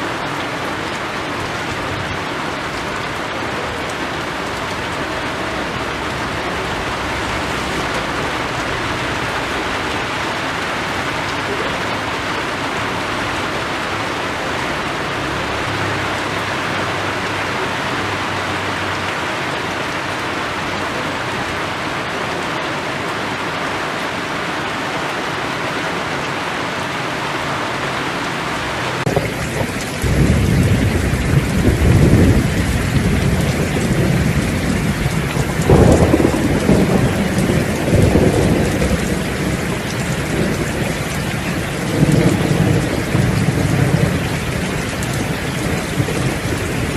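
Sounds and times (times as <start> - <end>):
rain falling: 0.0 - 46.9
thunder rumbling: 1.3 - 19.1, 29.0 - 46.9.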